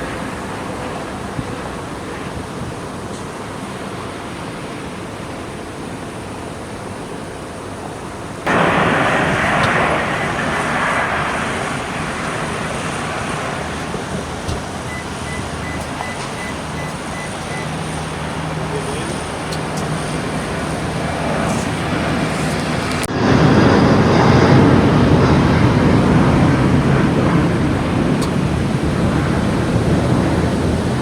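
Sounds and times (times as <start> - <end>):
jet airliner engines rushing: 0.0 - 31.0.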